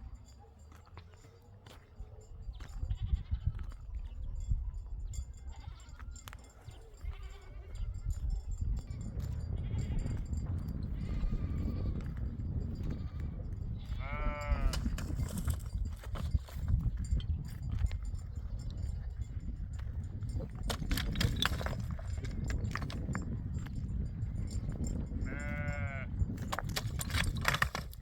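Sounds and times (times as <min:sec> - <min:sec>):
sheep or goat bleating: 0:02.5 - 0:03.8, 0:07.0 - 0:07.9, 0:11.0 - 0:12.2, 0:12.9 - 0:15.0, 0:25.3 - 0:26.1.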